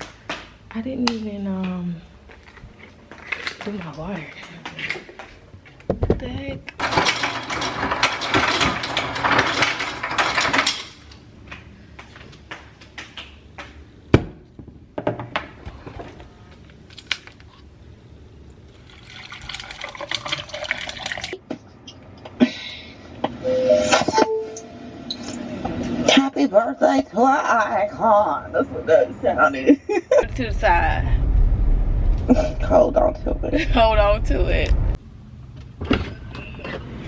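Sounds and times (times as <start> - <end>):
water filling a bottle: 18.7 - 21.4.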